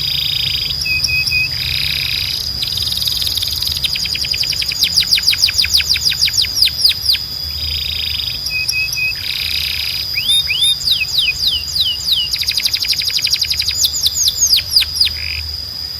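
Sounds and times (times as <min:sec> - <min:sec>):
canary singing: 0:00.0 - 0:15.9.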